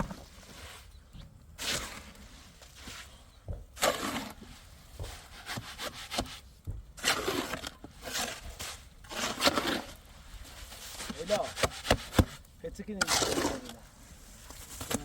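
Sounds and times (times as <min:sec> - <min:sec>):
scraping strokes: 0:00.0 - 0:12.4.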